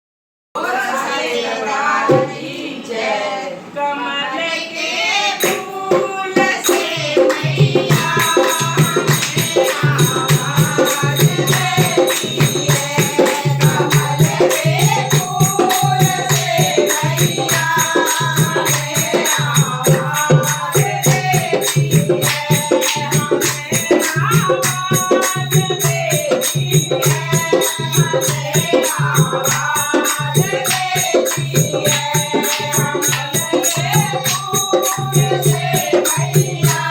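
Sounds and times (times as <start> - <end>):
devotional singing: 0.6 - 36.9
jingling hand percussion: 5.4 - 36.9.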